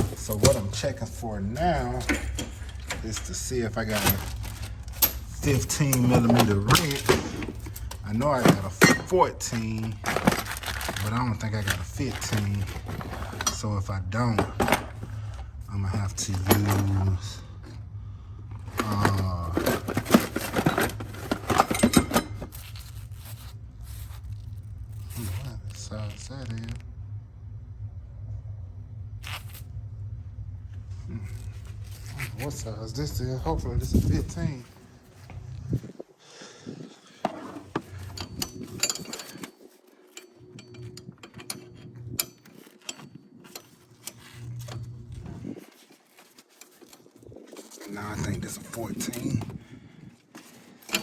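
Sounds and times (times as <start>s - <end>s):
metal wrenches clinking and scraping: 0.0s - 17.8s, 18.6s - 26.8s, 37.2s - 49.6s, 50.4s - 51.0s.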